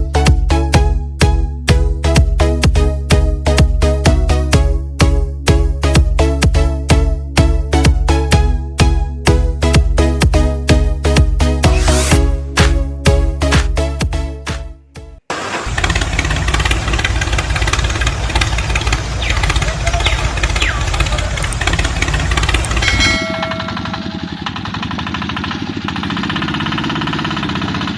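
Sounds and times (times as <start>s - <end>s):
small engine running: 15.3s - 27.9s.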